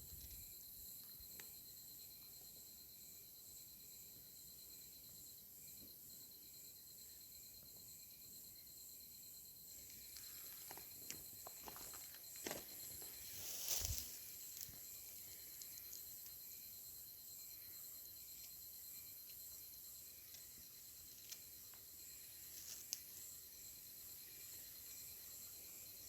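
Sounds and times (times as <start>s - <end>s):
crickets chirping: 0.0s - 26.0s
soft rustles and clicks: 13.3s - 14.8s.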